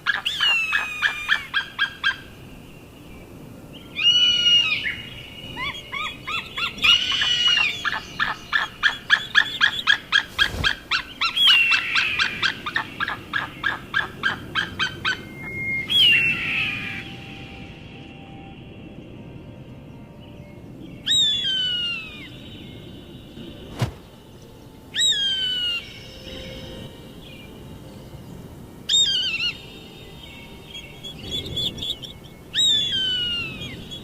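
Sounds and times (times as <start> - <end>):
eagle screams: 6.8 - 9.0.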